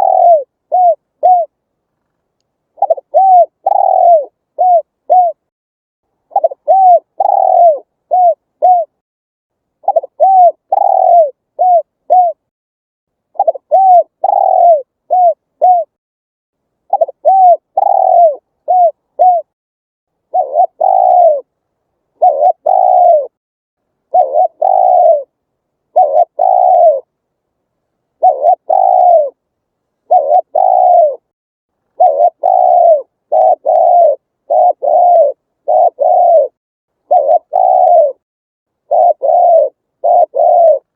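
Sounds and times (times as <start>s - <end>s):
dove cooing: 0.0s - 1.6s, 2.8s - 5.5s, 6.3s - 9.0s, 9.8s - 12.4s, 13.3s - 16.0s, 16.9s - 19.6s, 20.3s - 21.5s, 22.2s - 23.4s, 24.1s - 27.1s, 28.2s - 29.4s, 30.0s - 31.3s, 31.9s - 38.2s, 38.8s - 40.9s.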